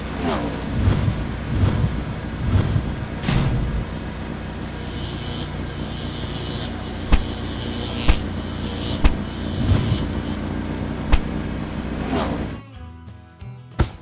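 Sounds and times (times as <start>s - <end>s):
cartoon car engine: 0.0s - 12.6s
cars ramming knocks: 0.3s - 4.6s, 7.0s - 7.4s, 8.0s - 10.3s, 11.0s - 12.6s.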